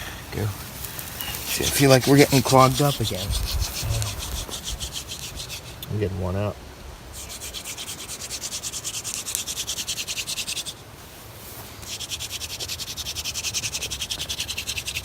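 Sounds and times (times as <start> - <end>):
wooden spindle rubbing scratch: 1.1 - 5.9, 7.2 - 10.8, 11.8 - 15.0.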